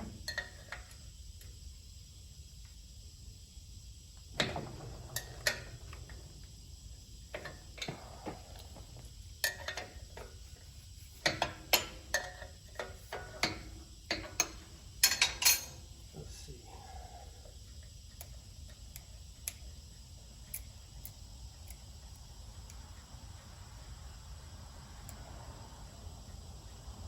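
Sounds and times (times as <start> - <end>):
metallic clinks of hand tools: 15.0 - 15.8.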